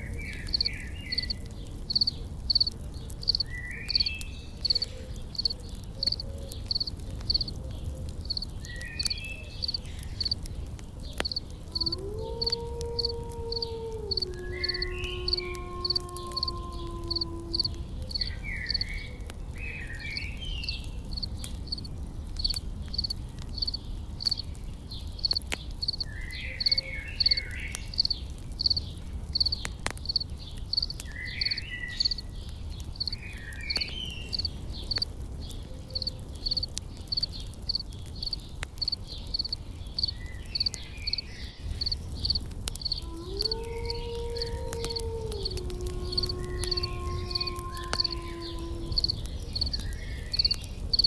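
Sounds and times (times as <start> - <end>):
birds chirping: 0.0 - 51.0
campfire crackling: 0.0 - 51.0
insect chirping: 0.5 - 2.7, 3.3 - 4.1, 5.4 - 7.5, 8.2 - 10.4, 11.2 - 18.9, 22.5 - 24.4, 25.2 - 28.8, 29.4 - 32.2, 34.3 - 35.0, 36.0 - 51.0.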